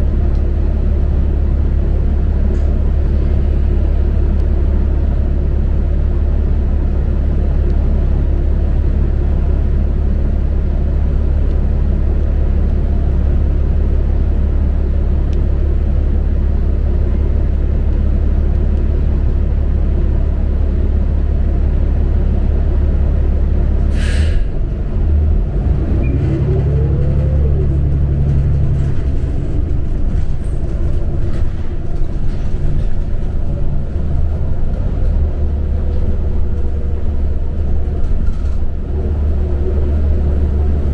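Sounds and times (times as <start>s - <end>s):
bus engine droning: 0.0s - 40.9s
air brake hiss: 23.9s - 24.5s.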